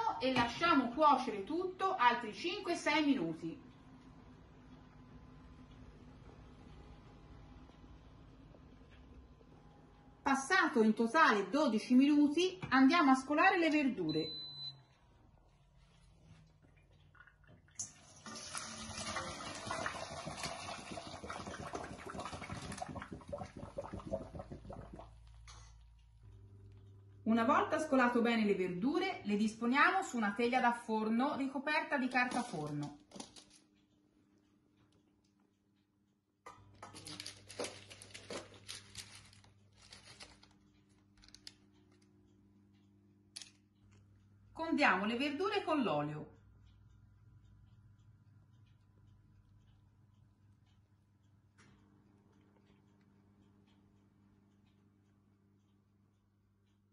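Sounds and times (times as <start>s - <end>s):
water trickling and dripping: 16.6s - 25.5s
water gushing and splashing: 18.1s - 25.2s
baking paper crinkling: 32.1s - 33.7s, 36.8s - 41.7s.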